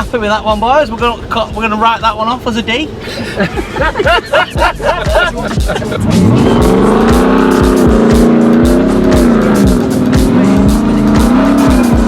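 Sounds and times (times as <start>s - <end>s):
music with kick-drum beat: 3.5s - 12.0s
car engine at high revs: 4.5s - 12.0s.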